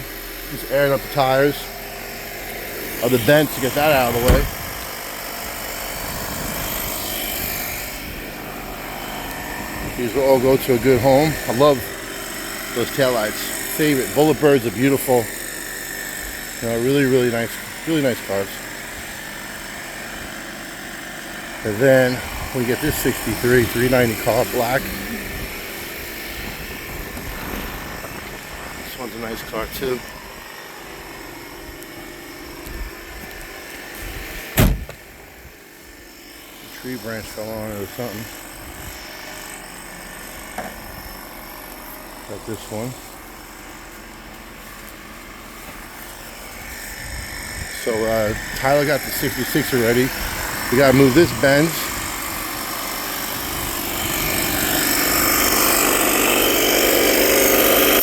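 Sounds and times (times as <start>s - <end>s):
air compressor rattling: 0.0s - 35.2s, 36.4s - 58.0s
steady mechanical hum: 0.0s - 58.0s
loud thump: 4.1s - 4.8s, 34.5s - 35.0s.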